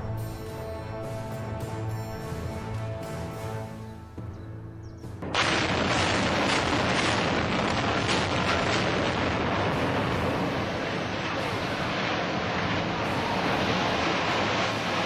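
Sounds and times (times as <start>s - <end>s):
loud demolition blast: 5.3s - 15.0s
rumble of building collapsing: 5.4s - 15.0s.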